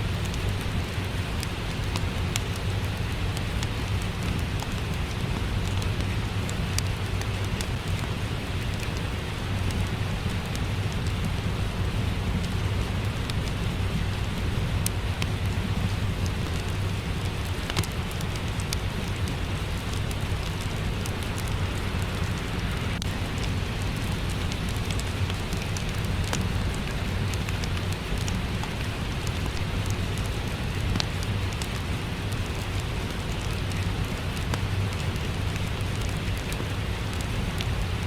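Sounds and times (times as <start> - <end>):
steady rain: 0.0 - 38.0
wood fire crackling and popping: 0.1 - 38.0.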